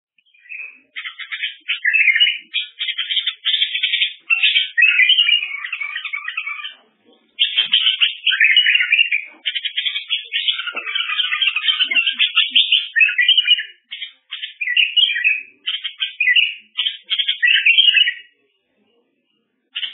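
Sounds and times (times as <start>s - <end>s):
songbird singing trills: 0.2s - 18.3s.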